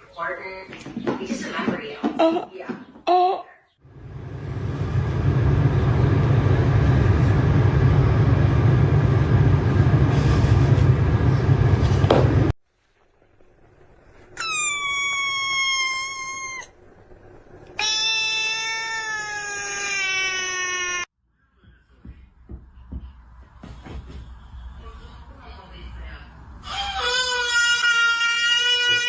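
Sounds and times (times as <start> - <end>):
cat meowing: 14.4 - 16.7, 17.8 - 21.1.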